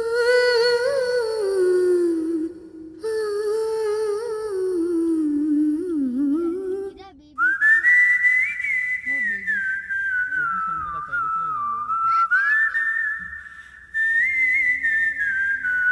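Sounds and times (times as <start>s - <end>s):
person humming a slow melody: 0.0s - 7.5s
person whistling a tune: 7.4s - 15.9s.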